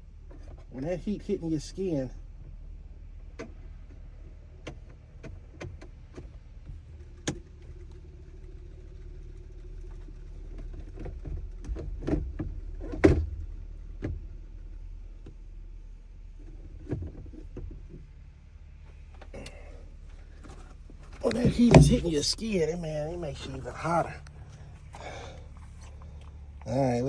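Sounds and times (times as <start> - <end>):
low steady hum: 6.6 - 27.0
plastic parts clicking and knocking: 20.4 - 22.2.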